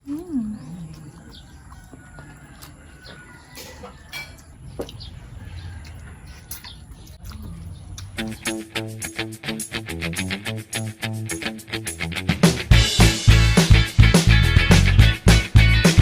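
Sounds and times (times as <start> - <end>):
small birds chirping: 0.0 - 8.9
chickens clucking: 0.1 - 8.7.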